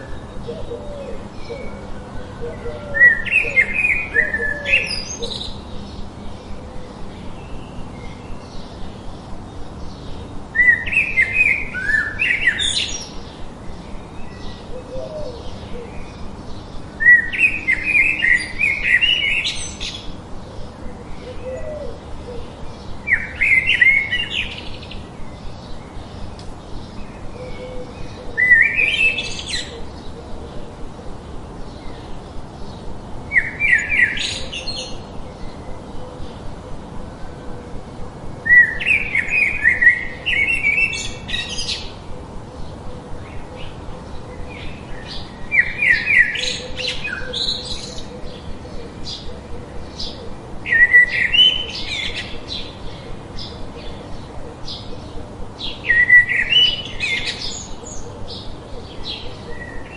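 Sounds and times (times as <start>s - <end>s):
songbird chirping: 0.0s - 59.9s.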